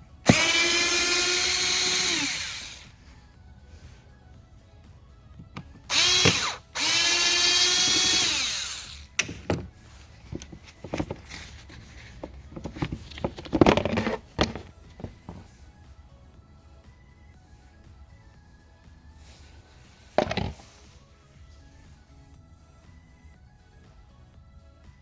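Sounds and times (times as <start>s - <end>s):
cordless drill whirring: 0.0s - 3.2s, 5.4s - 12.9s
handling rattle: 5.2s - 15.6s, 20.0s - 21.0s.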